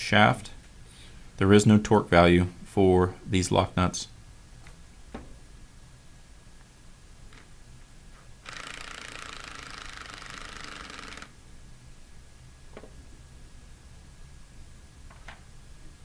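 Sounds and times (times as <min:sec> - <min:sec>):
ratchet clicking rapidly: 0:08.4 - 0:11.4.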